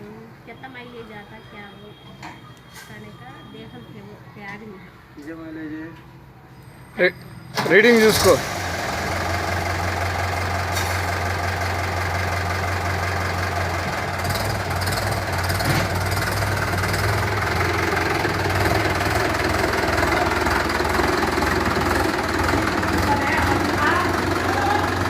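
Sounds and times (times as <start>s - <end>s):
tractor diesel engine running: 7.5s - 25.0s.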